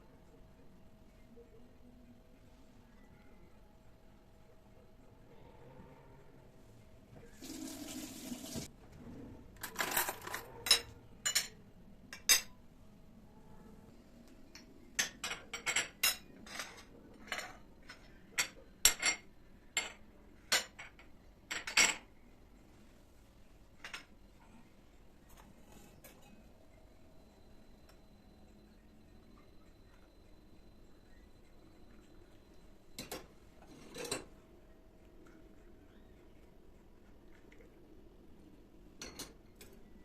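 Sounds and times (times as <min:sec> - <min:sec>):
water running from tap: 0:07.3 - 0:08.7
dishes clinking: 0:09.6 - 0:12.6, 0:14.5 - 0:22.1, 0:33.0 - 0:34.3, 0:39.0 - 0:39.8.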